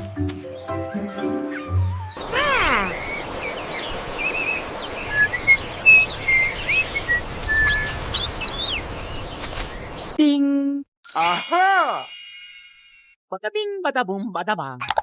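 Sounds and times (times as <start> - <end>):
outdoor background hiss: 2.2 - 10.2
small birds chirping: 2.2 - 10.2.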